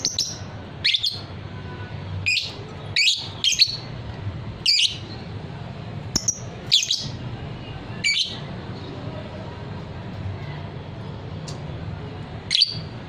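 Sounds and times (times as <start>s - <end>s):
bird shrill chirping calls: 0.0s - 1.3s, 2.2s - 3.9s, 4.6s - 5.2s, 6.2s - 7.2s, 8.0s - 8.4s, 12.5s - 12.9s.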